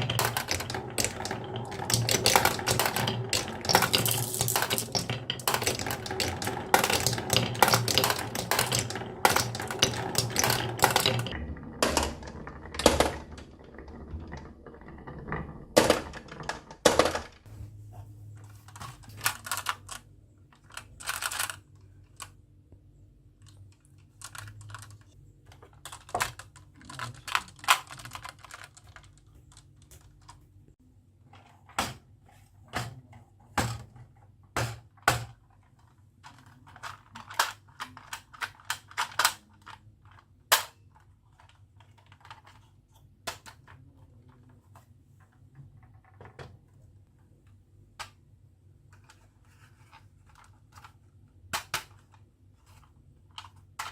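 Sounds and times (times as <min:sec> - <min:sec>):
marbles clattering down wooden run: 0:00.0 - 0:17.5.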